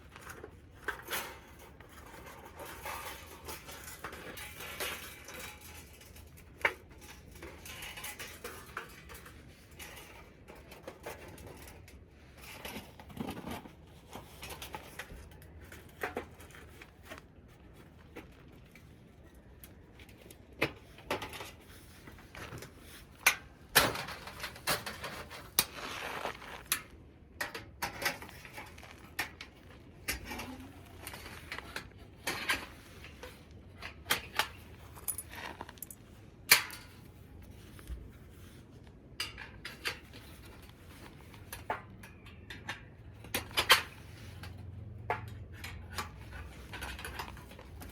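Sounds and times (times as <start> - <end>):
objects clicking and clinking: 18.0 - 38.0.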